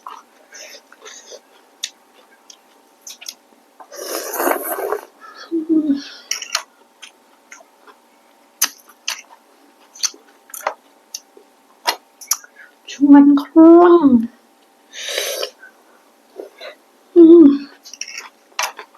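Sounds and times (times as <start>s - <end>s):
low voiced hum: 3.1s - 8.2s, 12.4s - 17.9s
loud noodle slurp: 3.9s - 5.1s.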